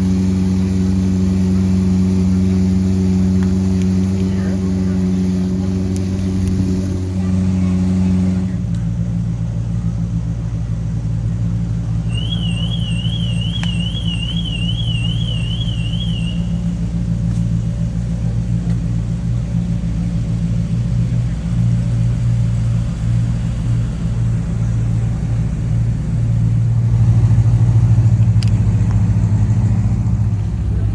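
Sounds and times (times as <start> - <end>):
car engine running: 0.0 - 30.9
warbling siren: 12.1 - 16.8.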